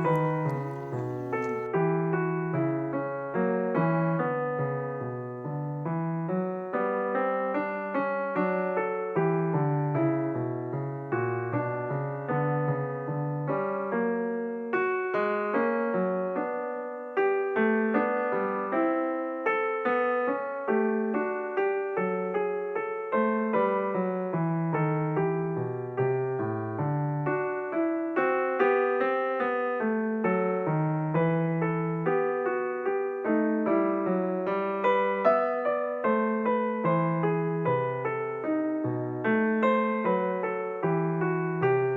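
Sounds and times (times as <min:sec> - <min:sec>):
piano music: 0:00.0 - 0:03.1, 0:15.6 - 0:41.9.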